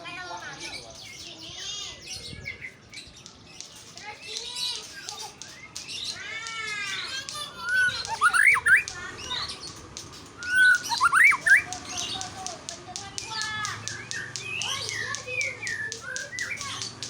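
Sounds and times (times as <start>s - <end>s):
bird whistled song phrases: 4.6s - 9.8s, 10.4s - 12.2s, 13.2s - 17.0s
sharp bird chip notes: 6.9s - 12.4s, 13.0s - 17.0s.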